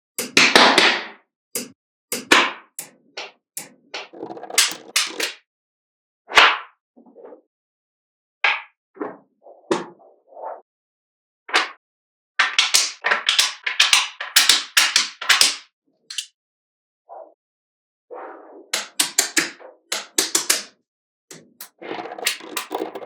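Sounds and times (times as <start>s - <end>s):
magnetic balls clicking: 3.2s - 5.3s, 21.4s - 23.0s.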